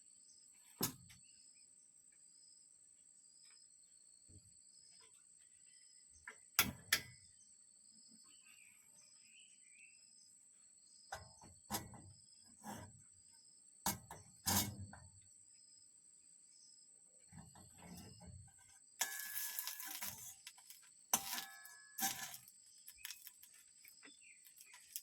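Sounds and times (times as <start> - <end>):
insect chorus: 1.2 - 6.4, 7.2 - 25.0
handling noises: 17.5 - 25.0.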